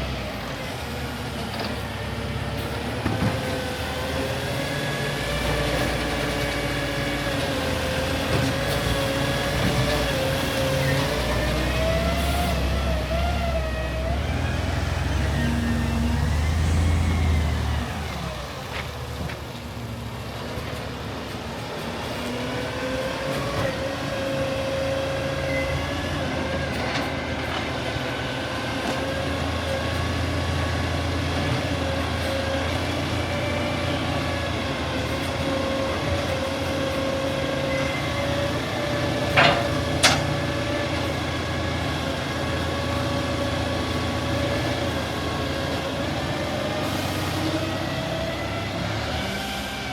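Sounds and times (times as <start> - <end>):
garbage truck engine running: 0.0 - 22.6.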